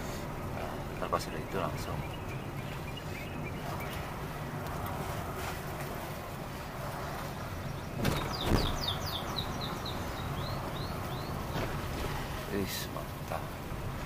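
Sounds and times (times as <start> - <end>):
bird chirping: 0.8 - 4.6, 7.5 - 12.0
knocks: 8.0 - 8.9.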